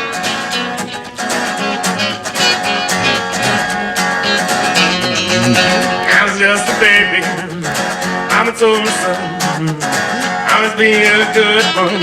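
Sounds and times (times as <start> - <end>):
acoustic guitar strumming: 0.0 - 12.0
walking bass line: 1.6 - 7.8.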